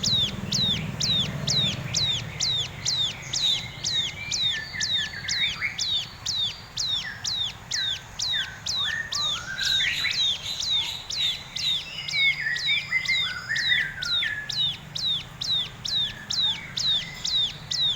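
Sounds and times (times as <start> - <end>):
soft low chirps: 0.0 - 9.5.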